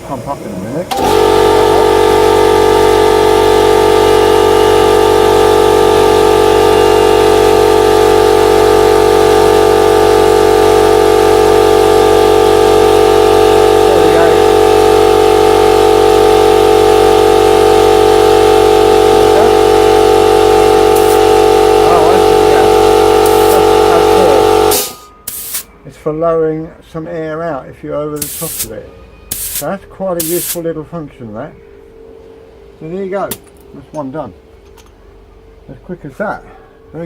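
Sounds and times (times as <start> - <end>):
air compressor running: 0.0 - 25.7, 28.1 - 30.8.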